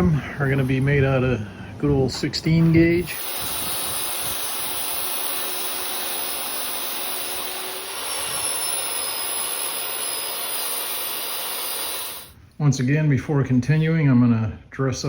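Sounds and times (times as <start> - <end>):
power tool cutting sheet steel: 3.0 - 12.4.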